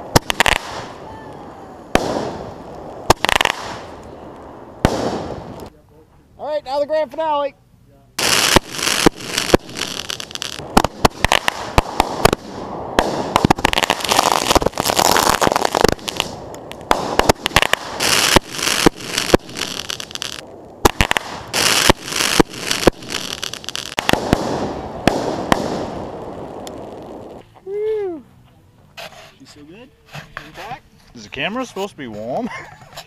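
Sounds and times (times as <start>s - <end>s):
fireworks bangs: 0.0s - 5.7s, 8.2s - 27.4s
fireworks crackling and hissing: 0.0s - 7.5s, 8.1s - 28.2s.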